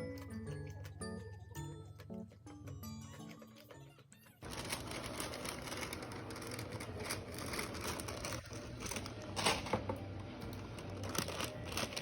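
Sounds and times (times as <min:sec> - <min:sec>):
rustling: 0:04.4 - 0:09.7, 0:10.6 - 0:12.0.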